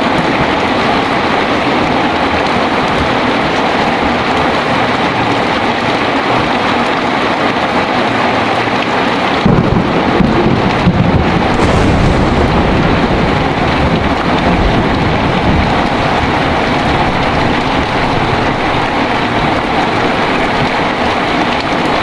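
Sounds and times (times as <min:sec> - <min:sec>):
heavy rain pouring: 0:00.0 - 0:22.0
thunder rumbling: 0:09.3 - 0:22.0.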